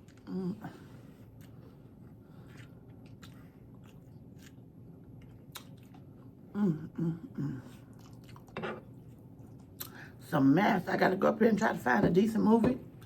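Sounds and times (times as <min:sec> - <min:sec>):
chewing crispy food: 0:01.3 - 0:06.4, 0:07.8 - 0:10.0.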